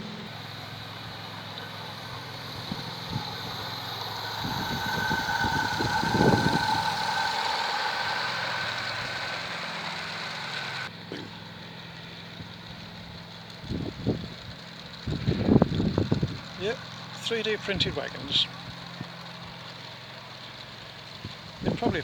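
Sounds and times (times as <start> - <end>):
model train motor whine: 0.0 - 22.0
wheels clicking on track: 0.0 - 22.0.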